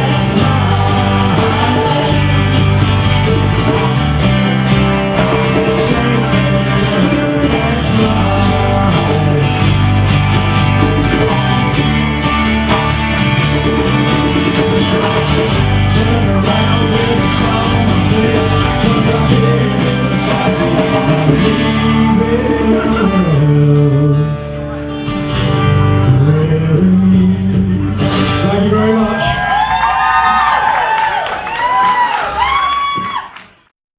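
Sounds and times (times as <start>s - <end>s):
live band playing: 0.0s - 32.8s.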